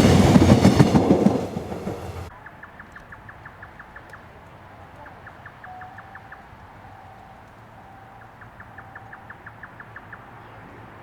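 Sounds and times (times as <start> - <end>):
bird chirping quickly: 2.4 - 10.9
faint whistled bird notes: 5.0 - 10.6.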